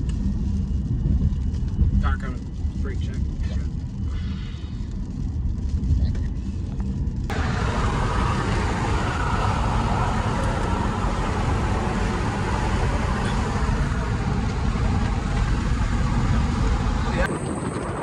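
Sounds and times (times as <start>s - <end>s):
vehicle road rumble: 0.0s - 18.0s
wind hiss: 7.3s - 18.0s.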